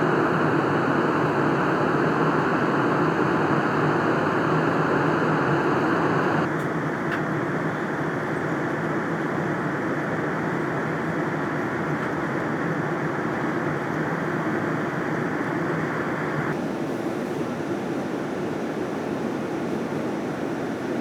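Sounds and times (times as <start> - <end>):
airliner cabin rumble: 0.0 - 6.5.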